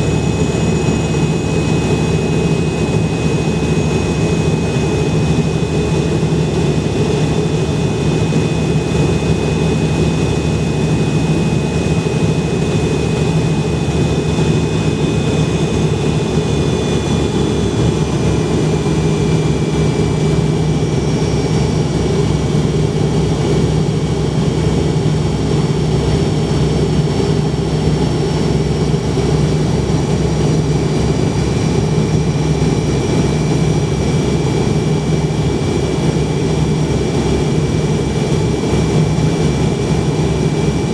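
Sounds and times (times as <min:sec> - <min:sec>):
jet engines humming and whining: 0:00.0 - 0:40.9.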